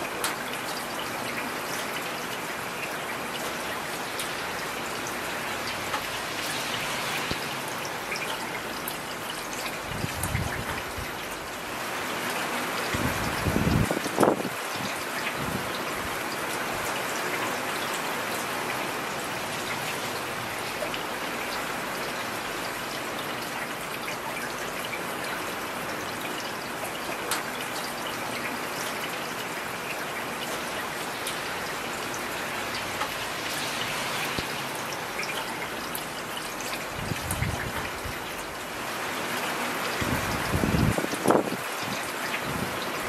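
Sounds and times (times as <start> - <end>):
raindrops striking surfaces: 0.0 - 43.0
heavy rain hissing: 2.6 - 10.6, 30.2 - 43.0.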